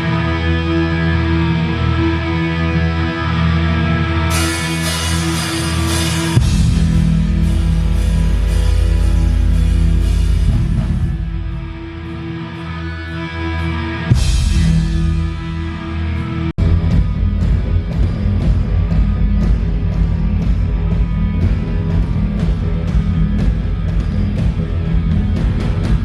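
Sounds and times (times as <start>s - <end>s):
rock band playing: 0.0s - 26.0s
cymbal strokes: 4.3s - 11.5s.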